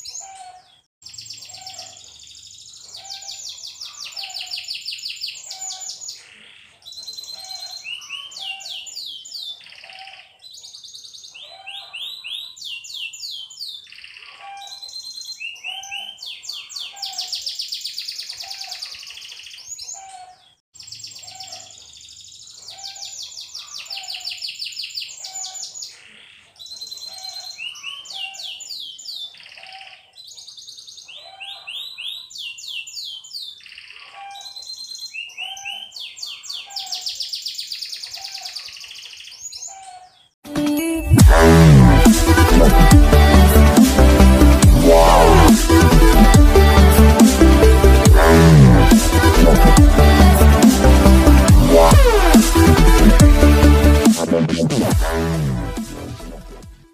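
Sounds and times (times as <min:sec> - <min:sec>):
canary singing trills: 0:00.0 - 0:40.4.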